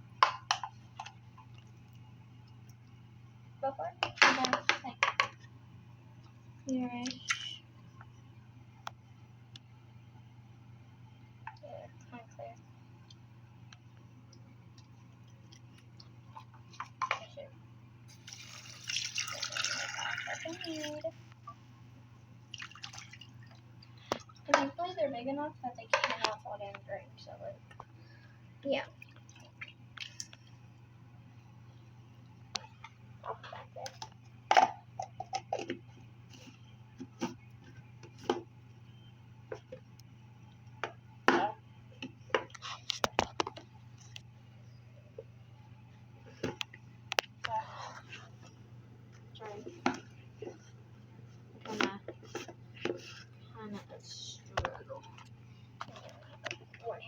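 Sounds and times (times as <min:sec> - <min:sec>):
steady low hum: 0:00.0 - 0:18.4, 0:19.9 - 0:57.0
small objects knocking and tapping: 0:00.2 - 0:01.6, 0:04.0 - 0:05.5
liquid pouring into a sink: 0:18.1 - 0:21.0, 0:22.5 - 0:23.6.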